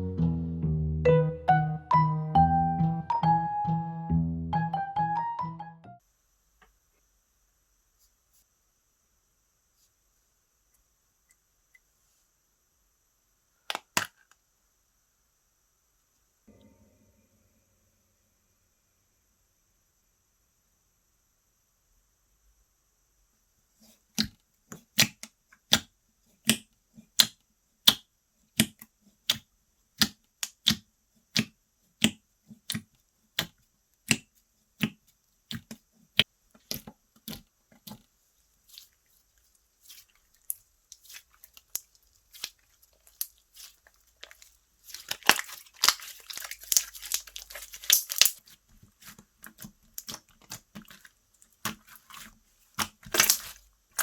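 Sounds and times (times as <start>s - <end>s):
slime crackling when torn: 39.8s - 50.9s, 52.8s - 54.0s
slime squished popping: 41.0s - 54.0s.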